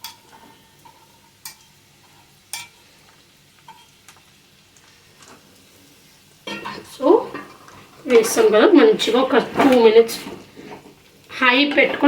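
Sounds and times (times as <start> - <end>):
faint oil sizzle: 0.0 - 12.0
spatula clinking against pan: 1.4 - 1.7, 2.5 - 2.8.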